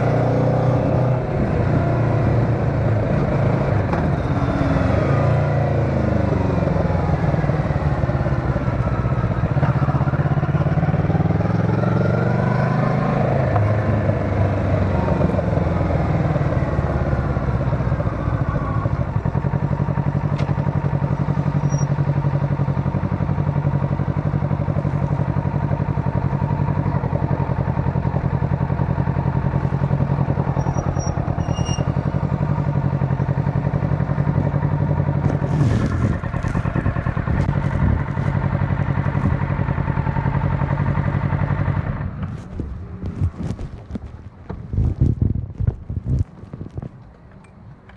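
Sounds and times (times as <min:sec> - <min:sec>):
motorcycle engine while riding: 0:00.0 - 0:47.9.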